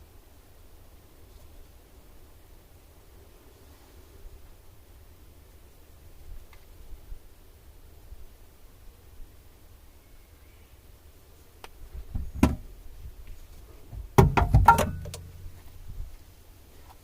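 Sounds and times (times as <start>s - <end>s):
knocks and clunks: 12.2s - 12.7s, 13.9s - 15.5s.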